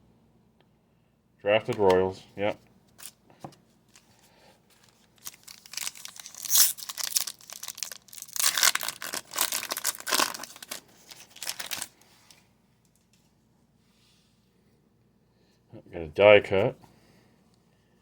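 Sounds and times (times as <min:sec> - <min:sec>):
card pack wrapper tearing and crinkling: 0:04.7 - 0:12.0.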